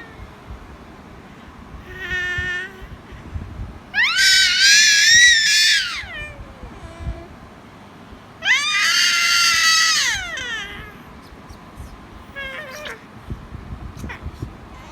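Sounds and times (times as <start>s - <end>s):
cat yowling: 3.9s - 7.3s, 8.4s - 11.1s, 12.3s - 13.1s, 14.0s - 14.9s.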